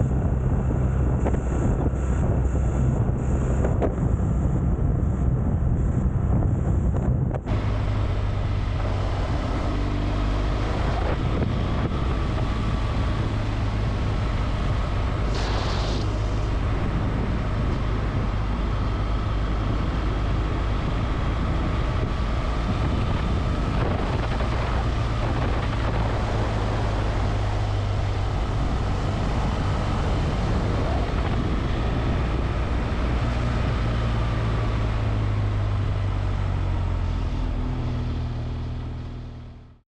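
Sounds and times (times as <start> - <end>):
motorcycle engine running: 0.0 - 39.8
wind noise on microphone: 0.0 - 39.8
brief hiss: 15.3 - 16.5.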